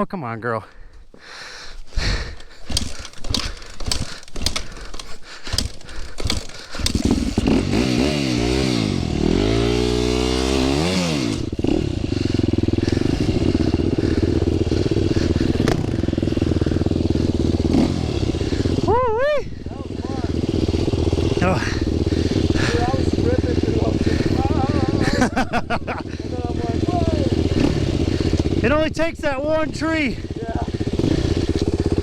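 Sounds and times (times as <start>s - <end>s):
dirt bike engine revving: 2.0s - 32.0s
clattering scraping knocks: 2.3s - 7.6s.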